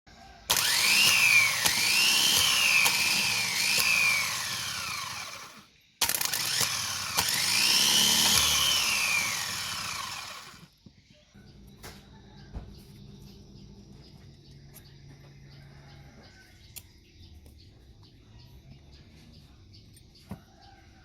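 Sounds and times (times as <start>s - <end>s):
electric motor whining: 0.5s - 10.7s.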